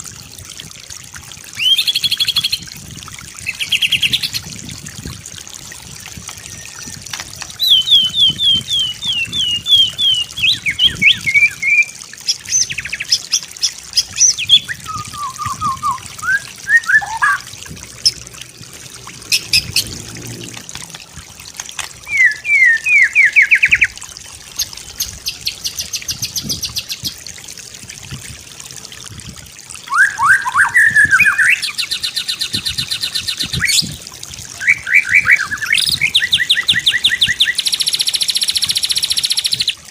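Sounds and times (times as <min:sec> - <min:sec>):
bird singing whistles and trills: 0:01.6 - 0:02.6, 0:07.6 - 0:18.2, 0:22.1 - 0:23.9, 0:29.9 - 0:34.0, 0:34.6 - 0:39.8.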